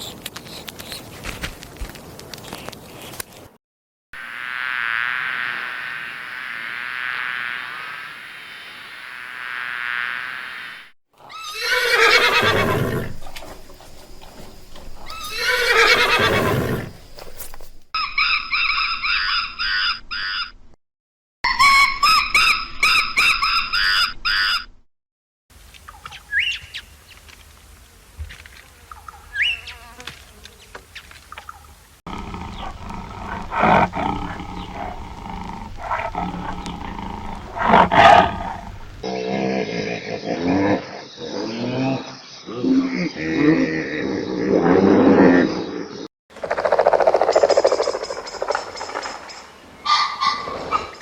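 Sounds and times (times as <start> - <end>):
bee buzzing: 4.2 - 11.0, 27.8 - 30.8
horse neighing: 11.2 - 13.5, 15.1 - 17.0
monkey calls: 18.0 - 20.6.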